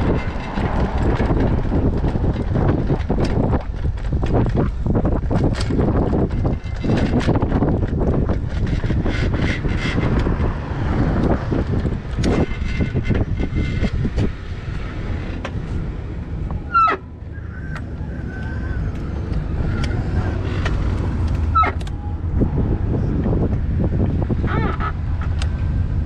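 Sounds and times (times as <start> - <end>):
road traffic noise: 0.0 - 26.0
wind on microphone: 0.0 - 26.0
sharp squeaks: 5.5 - 10.6, 11.2 - 14.5, 16.4 - 22.3, 24.4 - 25.4.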